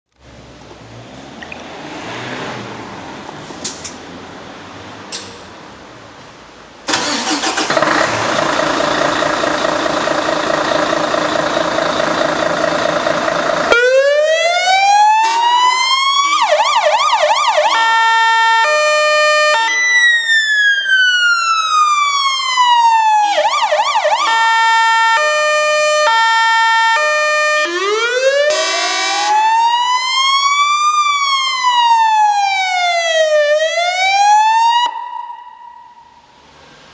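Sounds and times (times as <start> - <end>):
electronic siren cycling tones: 13.7 - 32.1
air horns blaring: 17.8 - 20.0, 28.5 - 29.5.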